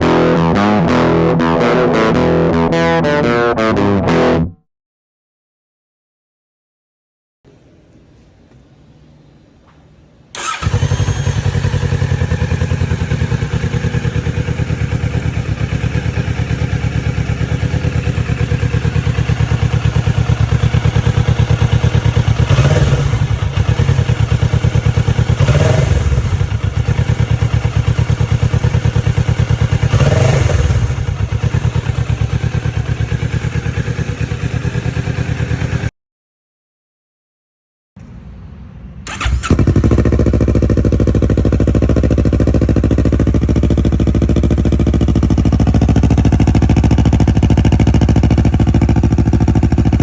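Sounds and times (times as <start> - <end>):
motorcycle engine idling and revving: 10.4 - 35.9, 39.1 - 50.0.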